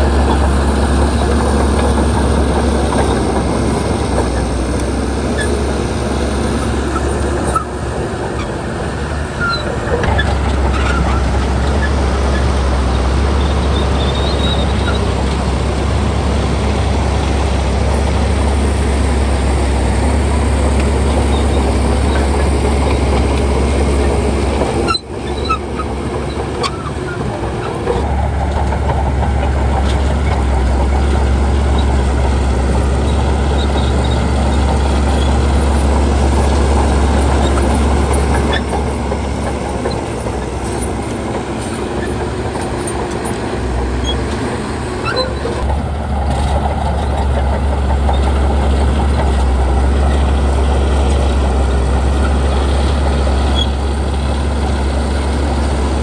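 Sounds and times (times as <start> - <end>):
bulldozer diesel engine running: 0.0 - 56.0
metallic clanks and squeaks: 9.4 - 15.2, 20.8 - 32.2, 33.0 - 51.4, 52.1 - 56.0.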